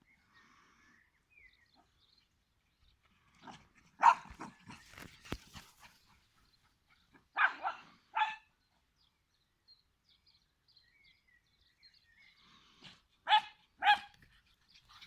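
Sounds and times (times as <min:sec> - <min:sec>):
dog barking: 0:03.4 - 0:04.6, 0:07.4 - 0:08.5, 0:13.3 - 0:14.2.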